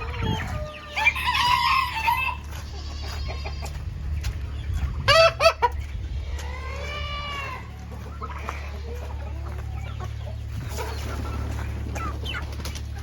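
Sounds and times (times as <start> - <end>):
chickens clucking: 0.0 - 13.0
rooster crowing: 0.3 - 2.5.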